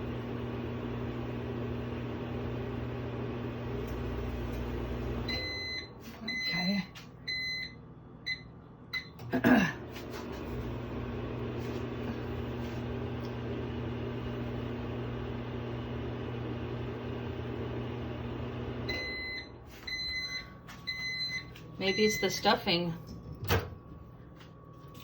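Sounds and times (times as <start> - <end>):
microwave humming: 0.0 - 25.0
microwave keypad beeps: 5.2 - 9.2, 18.8 - 22.6
microwave clunk: 23.2 - 23.9.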